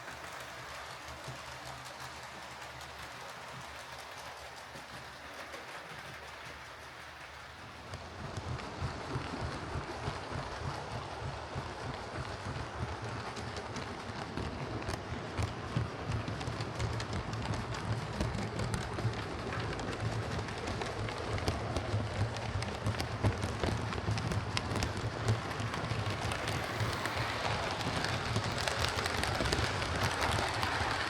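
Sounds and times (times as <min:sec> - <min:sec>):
model train wheel noise: 0:00.0 - 0:31.0
model train motor whirring: 0:20.4 - 0:31.0.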